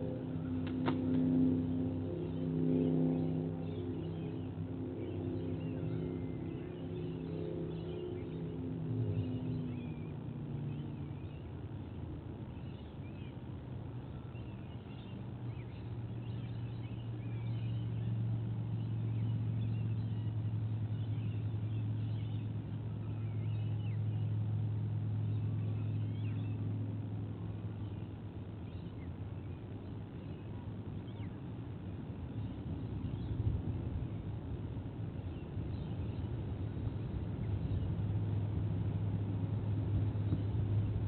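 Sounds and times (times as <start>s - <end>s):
distant motor drone: 0.0s - 41.0s
faint high bird chirps: 14.0s - 24.4s.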